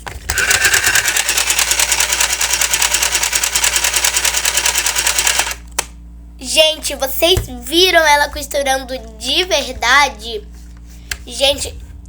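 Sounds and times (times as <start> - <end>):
small sewing machine chattering: 0.3 - 5.6.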